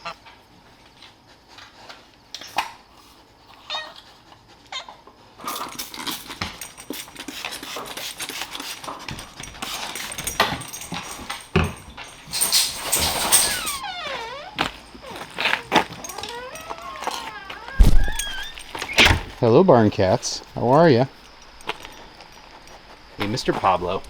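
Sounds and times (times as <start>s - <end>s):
dog whining: 3.6s - 4.1s, 9.8s - 19.3s
rustling and clattering: 5.5s - 13.8s, 14.6s - 19.4s.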